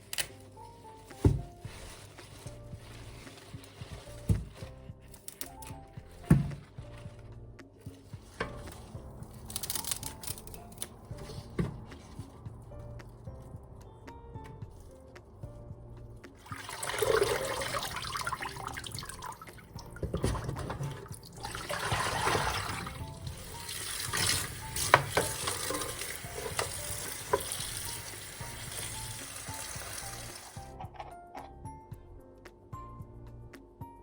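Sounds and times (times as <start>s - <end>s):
tap water running: 16.4s - 30.6s.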